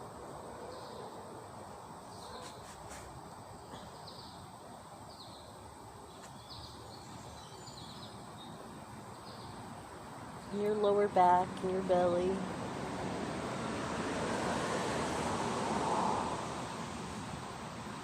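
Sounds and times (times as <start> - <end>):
outdoor background hiss: 0.0 - 18.0
small birds chirping: 2.0 - 11.3.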